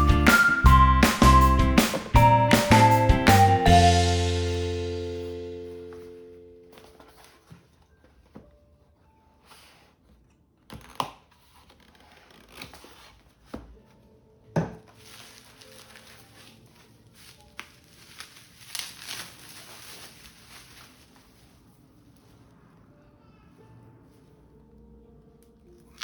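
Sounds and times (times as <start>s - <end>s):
crinkling: 14.8s - 22.6s.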